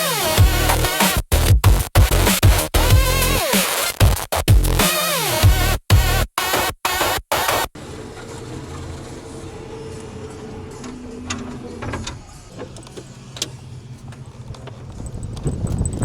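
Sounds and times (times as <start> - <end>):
low mechanical hum: 7.8 - 16.0.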